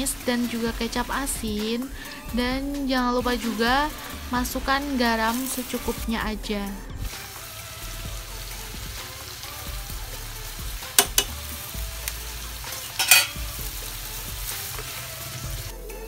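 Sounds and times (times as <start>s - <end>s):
paste sizzling in a wok: 0.0s - 16.0s
spoon stirring in a wok: 10.8s - 11.3s, 12.0s - 13.5s
spoon knocking on pan: 11.0s - 11.4s, 12.9s - 13.4s.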